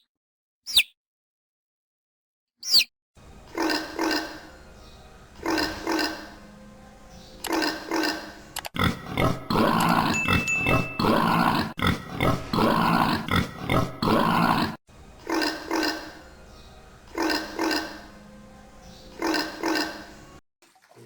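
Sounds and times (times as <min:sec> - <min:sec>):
animal calls: 0:03.5 - 0:04.5, 0:05.4 - 0:06.4, 0:07.2 - 0:16.2, 0:17.1 - 0:18.1, 0:18.9 - 0:20.1.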